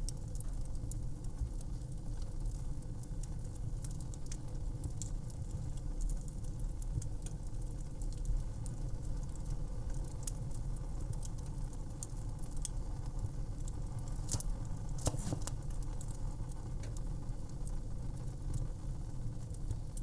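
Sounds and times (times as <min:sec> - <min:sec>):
fire crackling and popping: 0:00.0 - 0:20.0.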